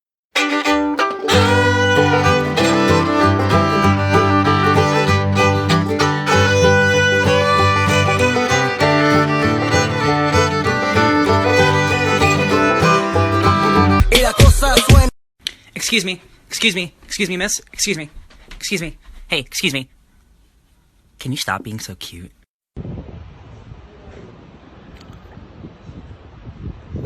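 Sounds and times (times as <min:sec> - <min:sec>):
fiddle melody: 0:00.4 - 0:14.0
plucked strings: 0:00.4 - 0:14.0
steady beat: 0:00.4 - 0:15.1.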